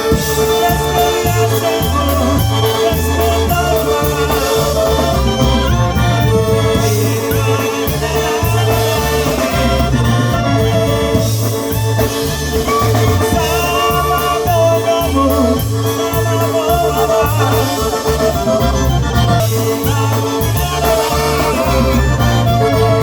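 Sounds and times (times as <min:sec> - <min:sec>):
accordion: 0:00.0 - 0:23.0
polka band playing: 0:00.0 - 0:23.0
steady bass beat: 0:00.0 - 0:23.0.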